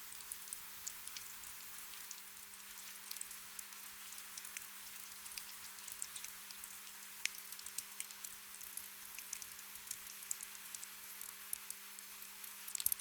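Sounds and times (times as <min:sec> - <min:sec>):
raindrops ticking: 0:03.0 - 0:13.0.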